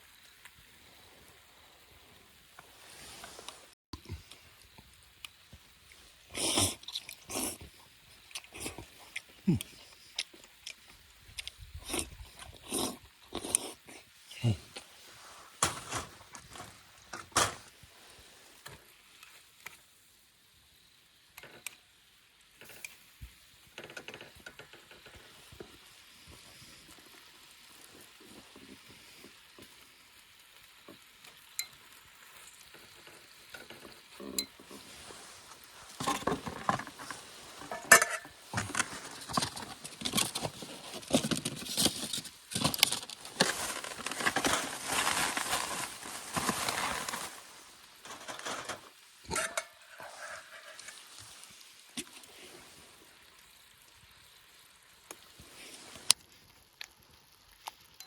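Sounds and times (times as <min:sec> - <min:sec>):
food sizzling in a pan: 0:00.0 - 0:09.6, 0:16.8 - 0:39.5, 0:45.8 - 0:58.0.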